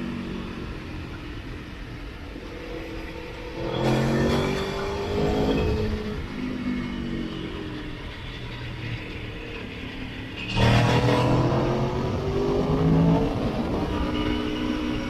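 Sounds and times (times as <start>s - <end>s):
motorcycle engine revving: 10.4s - 15.0s.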